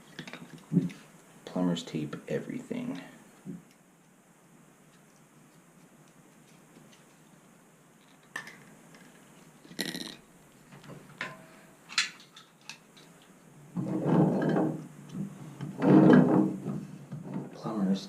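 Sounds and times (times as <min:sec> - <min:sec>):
rubbing and rattling: 0:12.1 - 0:17.6.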